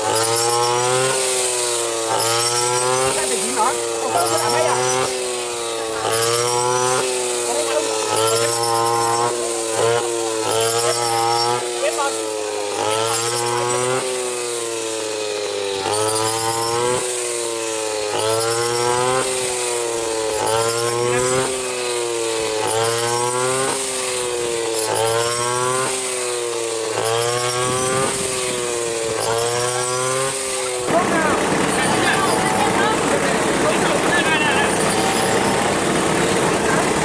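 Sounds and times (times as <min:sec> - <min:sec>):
small petrol engine under rhythmic load: 0:00.0 - 0:37.0.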